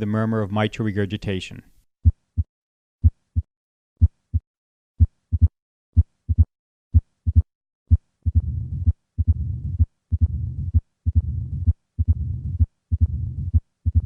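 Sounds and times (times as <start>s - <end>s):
heartbeat thumps: 2.0s - 14.0s
low heart murmur rumble: 8.2s - 14.0s.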